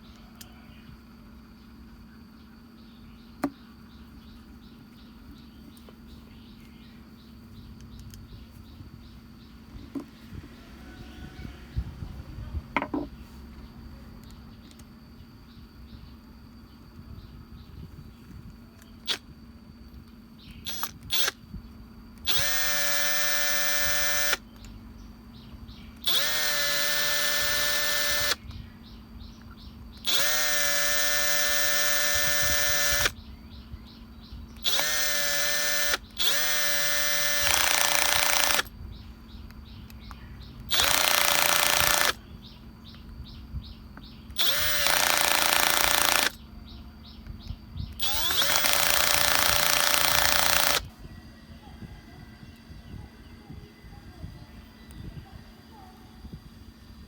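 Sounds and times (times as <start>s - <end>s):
angle grinder motor running: 22.2s - 24.4s, 26.0s - 28.4s, 30.0s - 33.2s, 34.6s - 38.7s, 40.7s - 42.2s, 44.3s - 46.4s, 47.9s - 51.0s.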